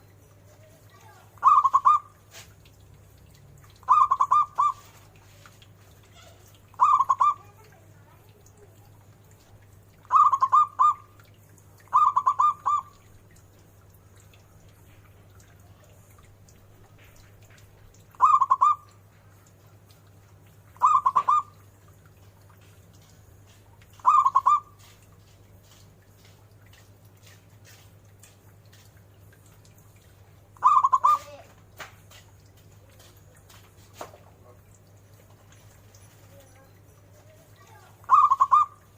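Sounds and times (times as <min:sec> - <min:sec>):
low steady hum: 0:00.0 - 0:38.9
dove cooing: 0:01.4 - 0:02.5, 0:03.8 - 0:05.3, 0:06.1 - 0:07.7, 0:10.0 - 0:11.1, 0:11.9 - 0:13.1, 0:18.2 - 0:18.9, 0:20.8 - 0:21.6, 0:24.0 - 0:24.7, 0:30.6 - 0:31.5, 0:37.7 - 0:38.9.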